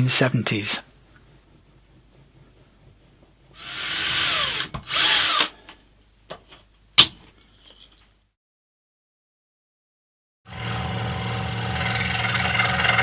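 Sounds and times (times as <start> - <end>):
power drill motor: 3.6 - 5.6.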